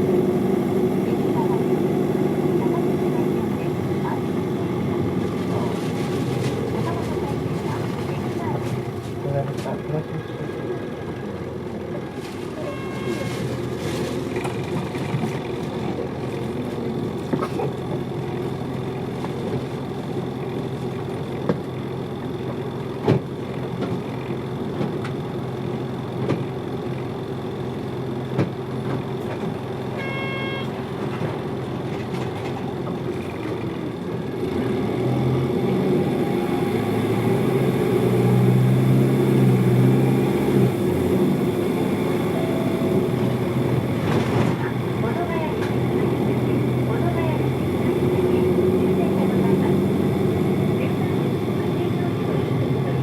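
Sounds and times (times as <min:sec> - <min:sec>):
bus diesel engine drone: 0:00.0 - 0:53.0
brief electronic tone: 0:12.6 - 0:13.4, 0:30.0 - 0:30.8, 0:42.0 - 0:43.7.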